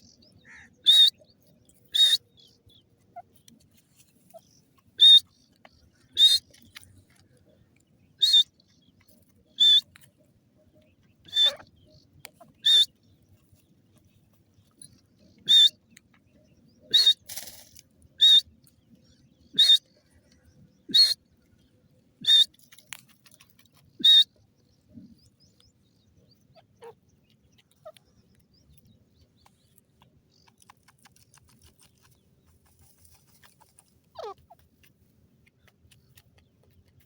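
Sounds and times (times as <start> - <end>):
francolin calling: 0.0 - 1.3, 1.9 - 3.3, 4.3 - 6.7, 8.2 - 8.9, 9.5 - 9.9, 11.2 - 13.0, 14.8 - 15.8, 16.8 - 17.3, 19.4 - 19.9, 20.8 - 21.2, 22.2 - 22.5, 24.0 - 24.3.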